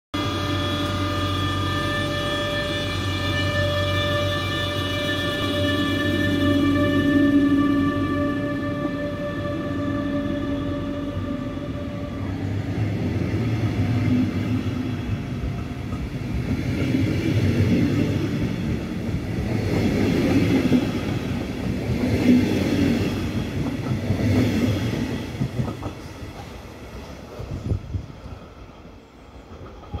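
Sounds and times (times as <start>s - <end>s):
locomotive high whine: 0.1s - 16.6s
train wheels rumbling and clattering: 12.5s - 30.0s.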